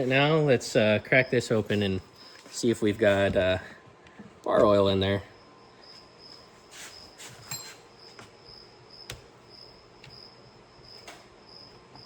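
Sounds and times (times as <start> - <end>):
insect chirping: 1.0 - 2.5, 5.2 - 12.0.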